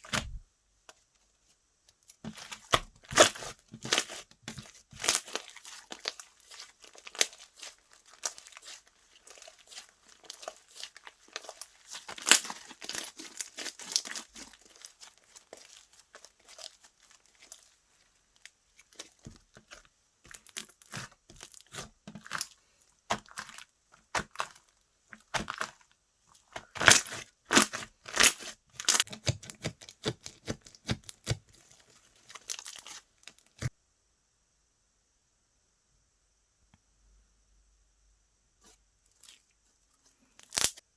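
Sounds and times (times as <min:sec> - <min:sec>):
slime crackling and popping: 0:02.3 - 0:17.7, 0:26.6 - 0:31.4, 0:40.4 - 0:40.8.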